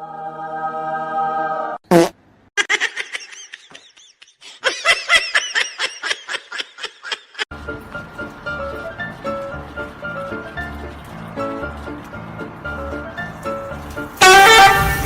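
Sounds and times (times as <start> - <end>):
high-pitched laughter: 2.6 - 7.5
music: 7.5 - 15.0.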